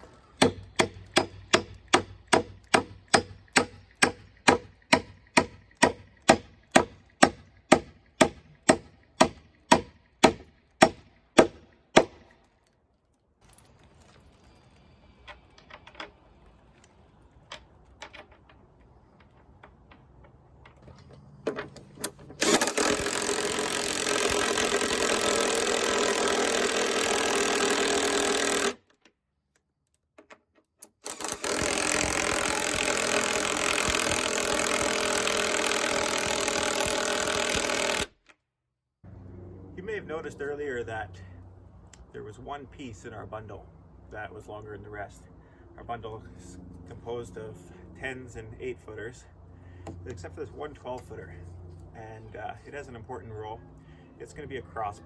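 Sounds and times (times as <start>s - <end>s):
power tool running: 22.3s - 28.8s, 31.0s - 38.1s.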